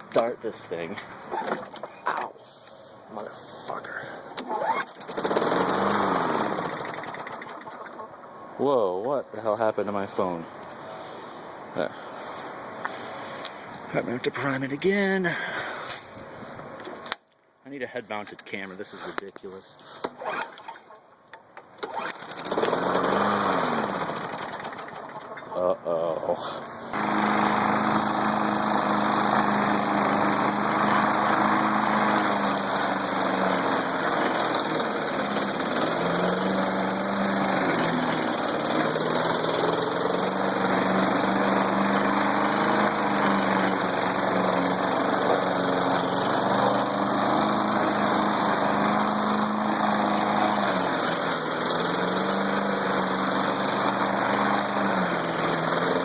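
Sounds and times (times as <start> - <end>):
push mower engine running: 4.4 - 8.2, 21.8 - 25.7, 26.8 - 56.0.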